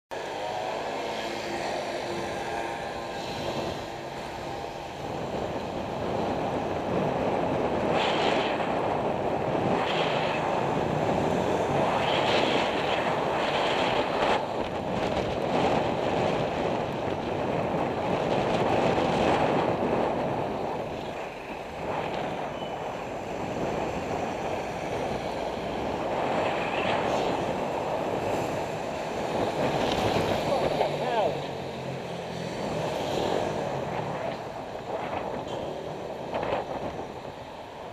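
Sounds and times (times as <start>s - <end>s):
road traffic rumbling: 0.1s - 37.9s
wind rushing over microphone: 0.1s - 37.9s.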